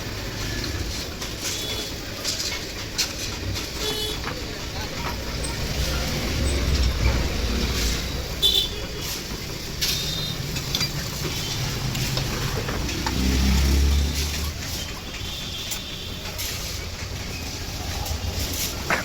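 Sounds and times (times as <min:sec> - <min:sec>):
road traffic rumbling: 0:00.0 - 0:19.0
tools clinking on metal: 0:09.8 - 0:11.4.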